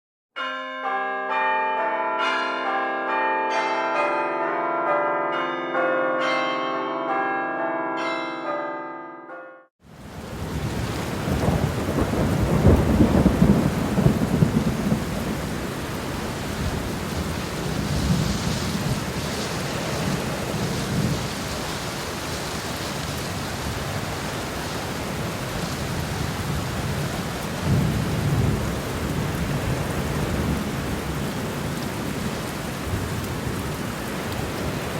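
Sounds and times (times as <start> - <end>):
bell-like chimes ringing: 0.4 - 9.7
heavy torrential rain: 9.8 - 34.9.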